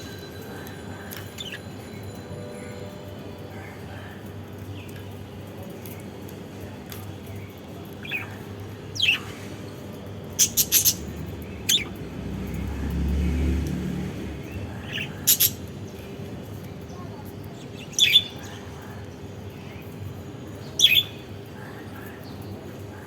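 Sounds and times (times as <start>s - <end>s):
budgies chirping: 10.4s - 12.0s, 14.6s - 15.7s, 17.7s - 18.8s.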